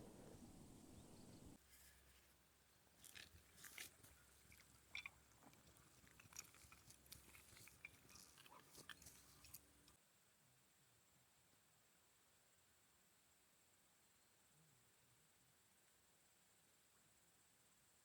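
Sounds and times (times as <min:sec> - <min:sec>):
faint clicks and crackles: 0:03.0 - 0:10.0.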